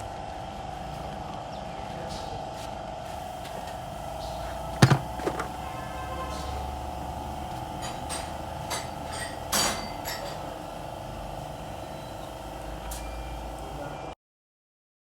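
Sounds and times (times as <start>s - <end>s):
metal tools tapping on metal: 7.8s - 10.6s.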